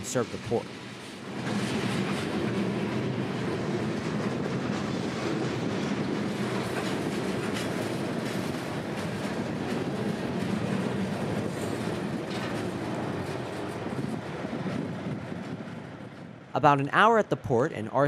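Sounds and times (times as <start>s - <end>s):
freight train rumbling past: 0.0s - 17.2s
wheels clicking over rail joints: 0.8s - 15.6s.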